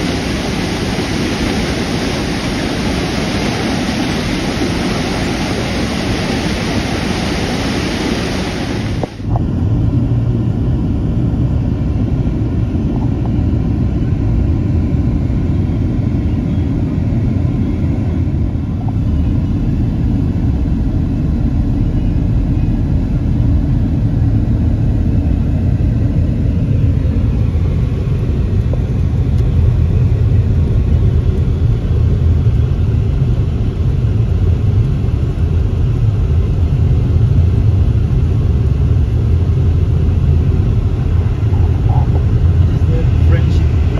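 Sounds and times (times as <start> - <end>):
waterfall roaring: 0.0 - 9.3
car engine rumble and road noise: 0.0 - 43.9.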